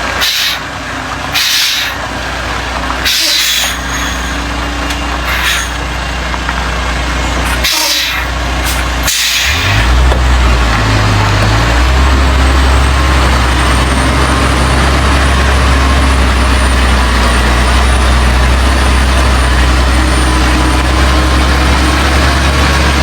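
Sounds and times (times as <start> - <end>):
diesel truck engine running: 0.0 - 23.0
air brake hisses: 0.2 - 0.7, 1.3 - 2.0, 3.0 - 4.5, 5.2 - 5.8, 7.5 - 9.9.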